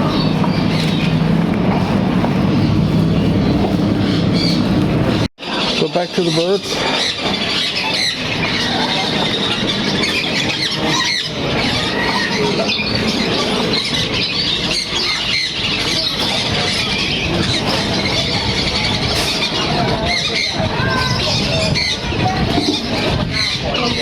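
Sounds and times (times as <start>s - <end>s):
caged birds chirping and squawking: 0.0s - 24.0s
market noise: 0.0s - 24.0s.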